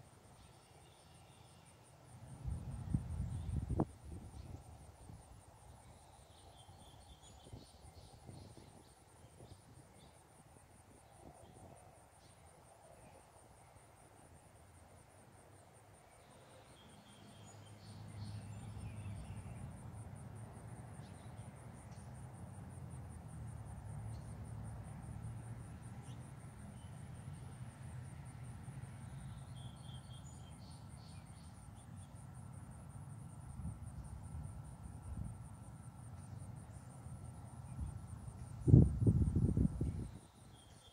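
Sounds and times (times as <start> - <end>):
faint bird chirps: 0.4 - 1.8.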